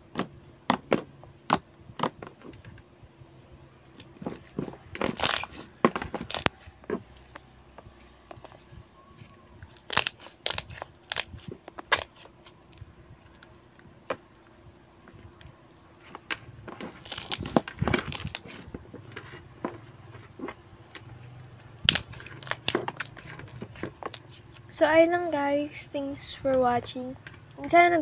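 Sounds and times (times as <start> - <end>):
slime squeezed with sticky crackles: 4.3 - 7.2, 9.7 - 12.8, 16.8 - 18.6, 21.8 - 24.7.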